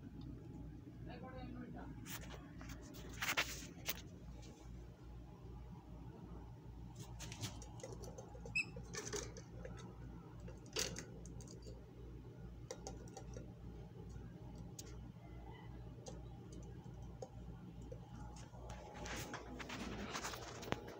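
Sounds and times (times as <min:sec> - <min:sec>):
low steady hum: 0:00.0 - 0:20.9
birds clicking and scratching: 0:07.0 - 0:11.8, 0:12.6 - 0:15.3, 0:15.9 - 0:20.9.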